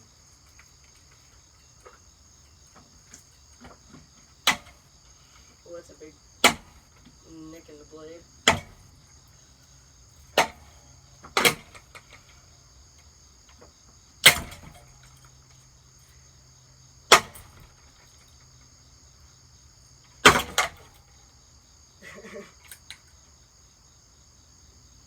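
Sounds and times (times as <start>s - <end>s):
crickets chirring: 0.0s - 25.0s
hammer striking ceiling fan: 6.4s - 6.8s, 8.4s - 8.8s.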